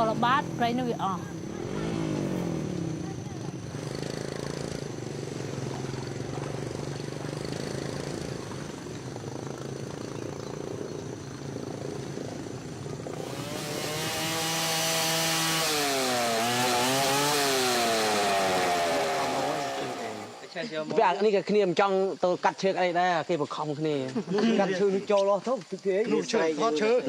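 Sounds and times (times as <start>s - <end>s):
chainsaw engine running: 0.0s - 20.7s.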